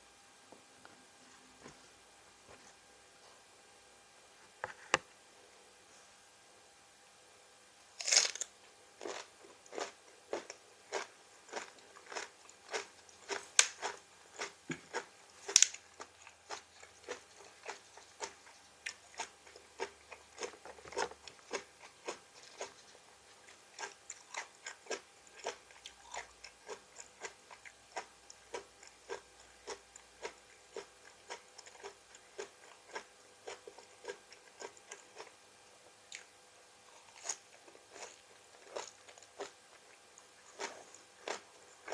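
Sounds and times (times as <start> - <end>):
person chewing crunchy vegetables: 8.0 - 35.4, 36.9 - 41.9.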